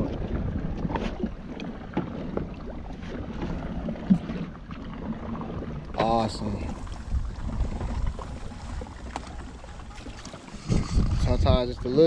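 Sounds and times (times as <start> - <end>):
wind buffeting microphone: 5.4 - 12.0.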